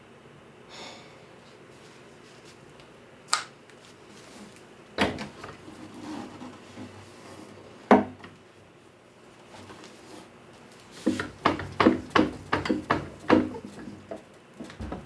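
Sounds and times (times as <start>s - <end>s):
wooden parts knocking: 11.0s - 15.0s.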